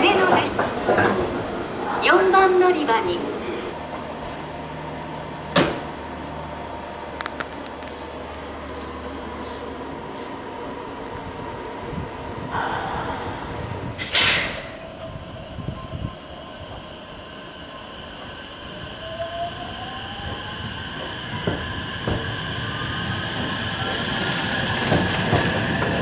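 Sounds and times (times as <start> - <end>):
air hiss: 12.5 - 14.8.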